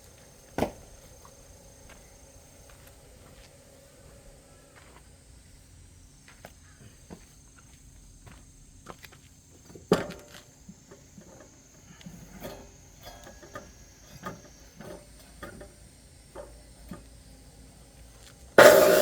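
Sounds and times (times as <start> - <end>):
electric cutting saw running: 18.6 - 19.0.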